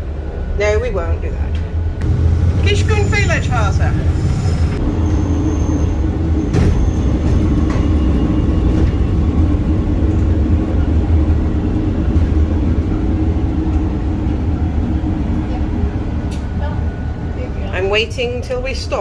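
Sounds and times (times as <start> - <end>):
train carriage rumbling on rails: 0.0 - 19.0.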